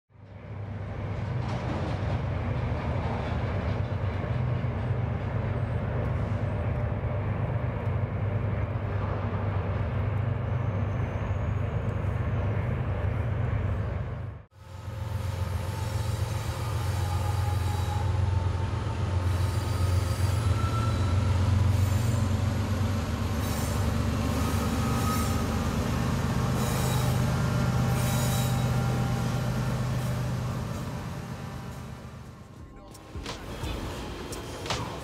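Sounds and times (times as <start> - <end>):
diesel locomotive engine drone: 0.2 - 35.0
freight wagon wheel squeals: 19.2 - 22.4, 23.4 - 25.7, 26.4 - 29.0.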